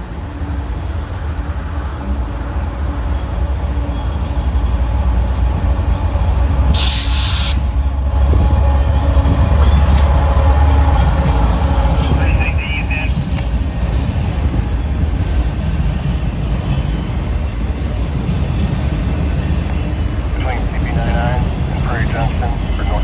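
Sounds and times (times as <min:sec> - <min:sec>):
diesel locomotive rumble: 0:00.0 - 0:23.0
burst of hiss: 0:06.8 - 0:07.6.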